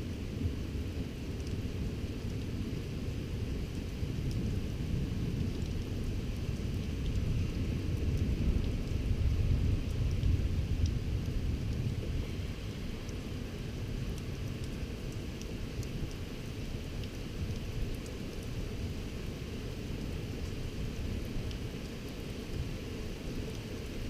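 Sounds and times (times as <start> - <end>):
rain: 0.0 - 24.0.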